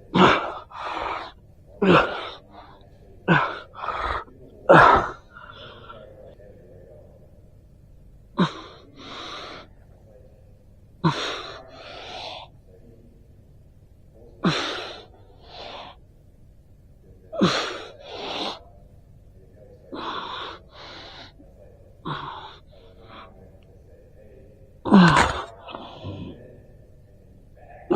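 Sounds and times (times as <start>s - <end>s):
person breathing hard: 0.2s - 4.3s.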